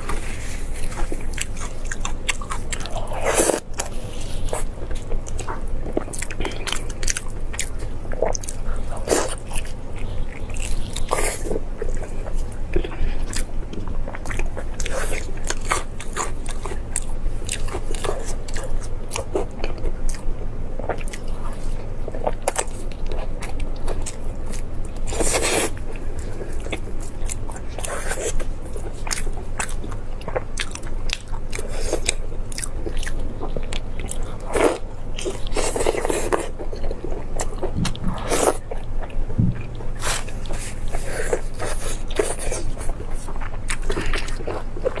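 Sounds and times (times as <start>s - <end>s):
person chewing food: 0.0s - 45.0s
low hum: 36.6s - 43.1s.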